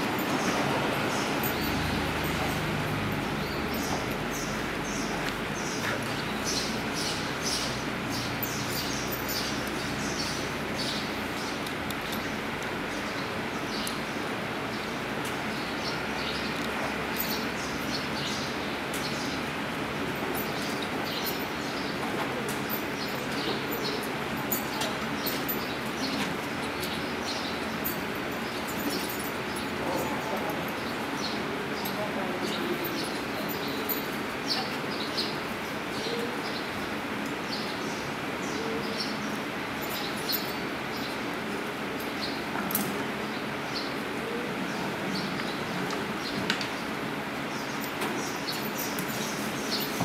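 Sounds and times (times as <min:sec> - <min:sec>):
small birds chirping: 0:00.4 - 0:12.3, 0:43.1 - 0:50.0.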